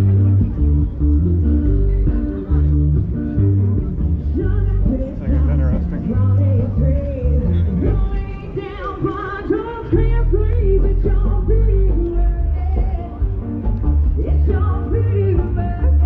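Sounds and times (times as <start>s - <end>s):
prominent bass: 0.0s - 9.1s, 9.9s - 16.0s
rockabilly band playing live: 0.0s - 16.0s
woman singing: 4.3s - 13.4s, 14.1s - 16.0s.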